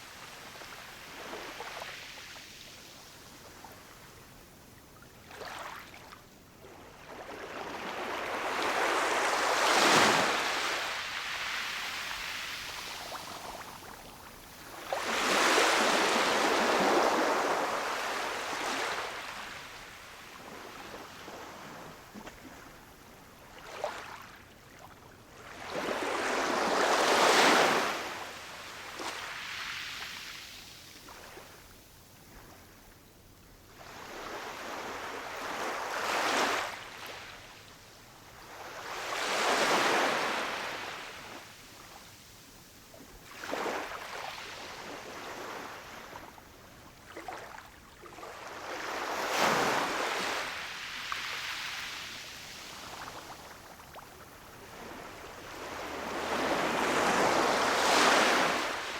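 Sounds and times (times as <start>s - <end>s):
ocean waves breaking on shore: 54.4s - 58.9s.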